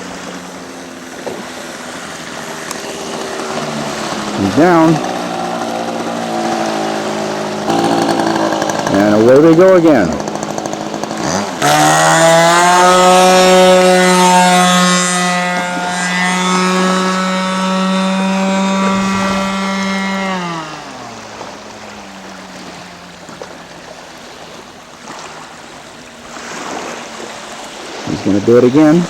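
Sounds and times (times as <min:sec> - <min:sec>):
model plane engine: 0:00.0 - 0:29.0.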